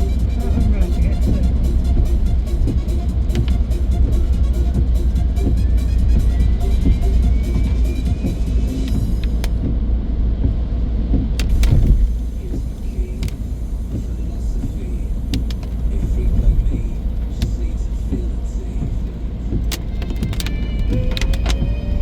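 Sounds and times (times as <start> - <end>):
car engine and road noise: 0.0 - 22.0
sharp clicks: 2.0 - 4.4, 5.4 - 9.8, 11.2 - 21.8.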